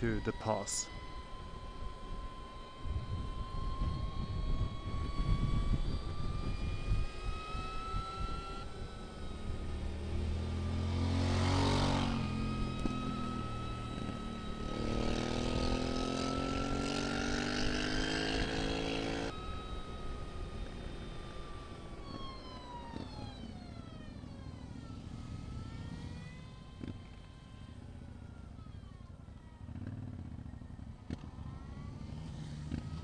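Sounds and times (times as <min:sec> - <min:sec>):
electric motorcycle motor whine: 0:00.0 - 0:33.0
engine accelerating: 0:00.0 - 0:33.0
wind rumble on microphone: 0:01.6 - 0:10.0
vehicle engine passing: 0:09.5 - 0:19.3.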